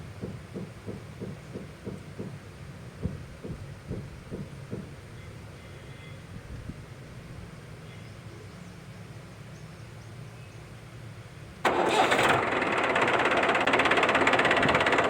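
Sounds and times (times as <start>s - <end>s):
small tractor motor rattling: 11.7s - 15.0s.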